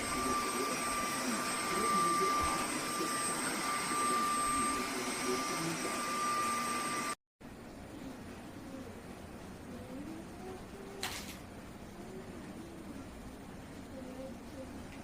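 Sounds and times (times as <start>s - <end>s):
vacuum mop running: 0.0s - 7.2s.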